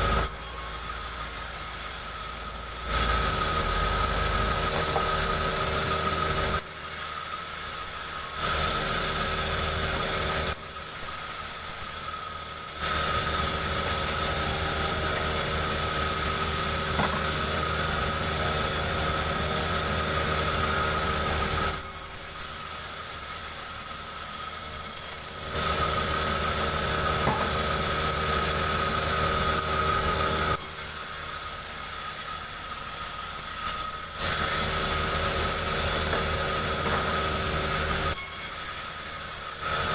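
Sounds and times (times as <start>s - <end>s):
chainsaw cutting log: 2.8s - 6.6s, 8.3s - 10.6s, 12.7s - 22.0s, 24.9s - 30.7s, 33.7s - 38.2s.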